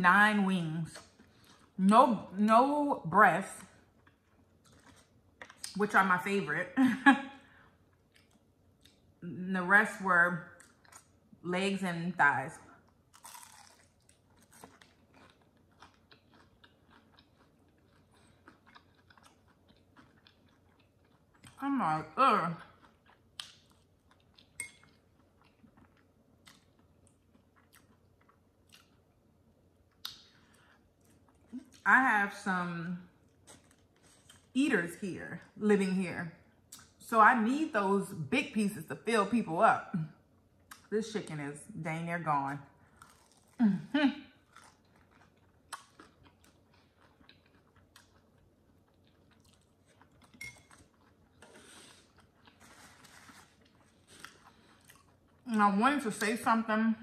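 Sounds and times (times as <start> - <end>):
soft wet mouth chewing: 3.9 - 5.8, 7.9 - 9.0, 13.1 - 21.6, 22.6 - 29.1, 29.9 - 31.8, 33.2 - 34.5, 40.6 - 40.9, 42.8 - 43.6, 44.4 - 55.4.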